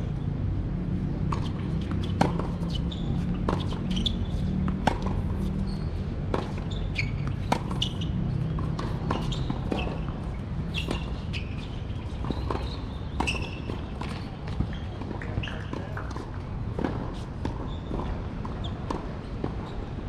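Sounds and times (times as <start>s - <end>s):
tennis ball bouncing on court: 0.8s - 19.8s
tennis ball striking racket: 1.2s - 5.6s, 6.3s - 11.3s.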